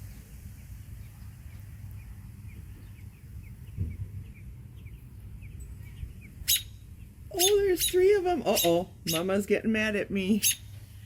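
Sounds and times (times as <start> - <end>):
steady low rumble: 0.0 - 11.0
robins chirping: 1.5 - 9.4, 10.3 - 10.7.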